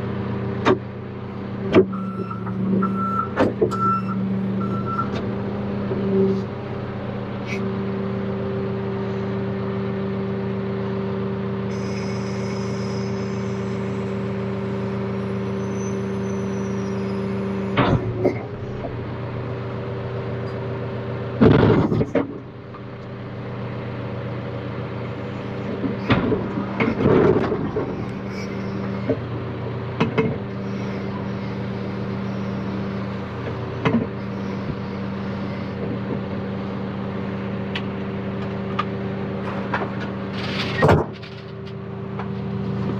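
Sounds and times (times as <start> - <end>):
diesel engine running: 0.0 - 42.9
loud clunks and clatters: 17.8 - 19.0, 21.4 - 22.4, 25.7 - 28.2, 30.0 - 30.4, 39.5 - 42.9.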